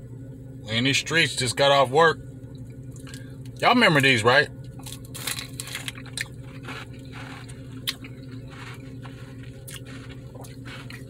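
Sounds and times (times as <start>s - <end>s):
crunching and chewing ice pop: 4.7s - 11.0s.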